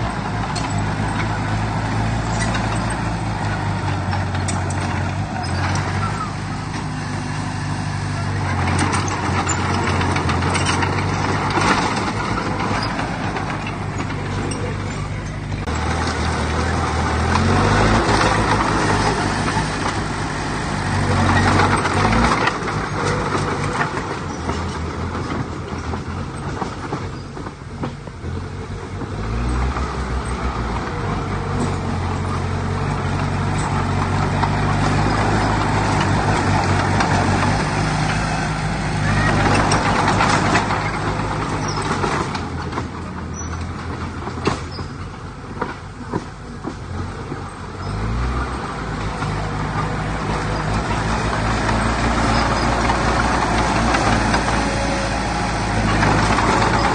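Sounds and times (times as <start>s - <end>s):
continuous noisy rush: 0.0s - 56.9s
diesel machinery engine revving: 0.0s - 56.9s.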